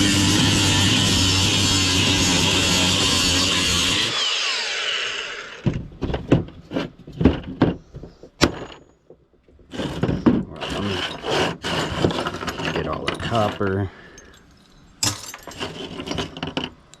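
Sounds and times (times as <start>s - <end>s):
scrap metal knocking and clanking: 5.6s - 17.0s.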